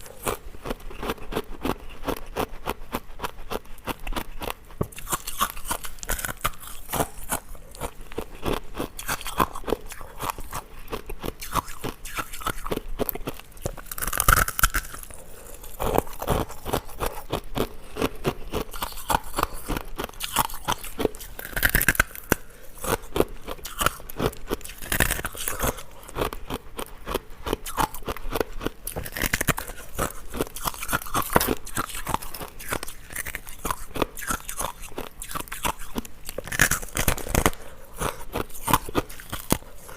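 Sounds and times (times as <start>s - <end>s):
ice cubes being chewed: 0.0s - 39.9s.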